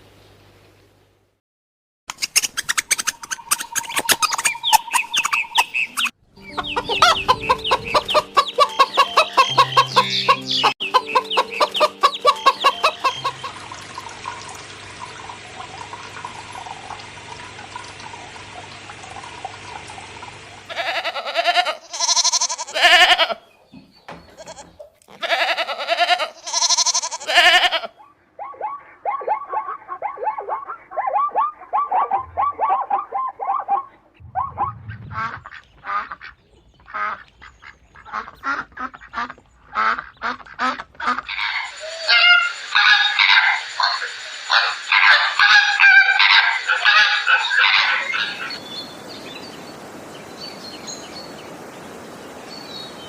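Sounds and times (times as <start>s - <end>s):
animal calls: 26.0s - 36.4s, 39.2s - 48.6s.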